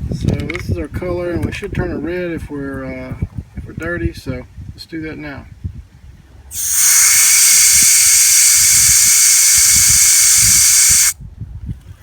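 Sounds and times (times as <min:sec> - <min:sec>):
refrigerant vapour hissing: 0:06.5 - 0:11.2.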